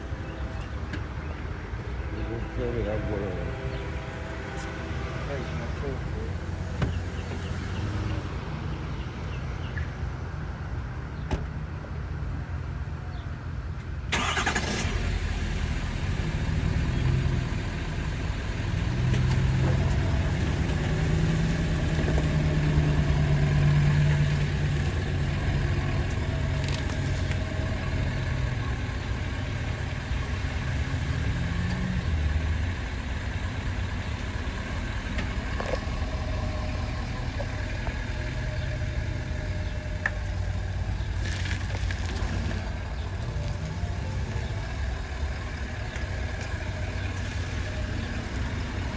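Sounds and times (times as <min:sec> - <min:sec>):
diesel locomotive engine drone: 0:00.0 - 0:48.9.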